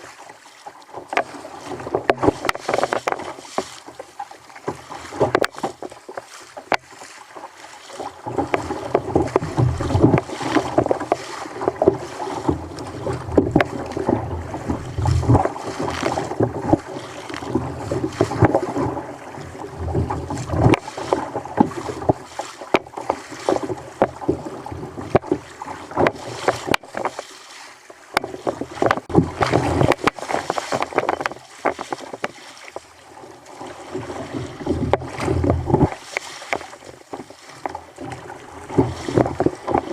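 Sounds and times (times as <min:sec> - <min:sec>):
water slapping against kayak hull: 0:00.0 - 0:39.9
knocks on hull: 0:01.0 - 0:03.8, 0:04.7 - 0:06.0, 0:08.2 - 0:19.0, 0:19.6 - 0:27.2, 0:28.1 - 0:32.8, 0:34.0 - 0:37.8
wind on microphone: 0:11.7 - 0:21.0.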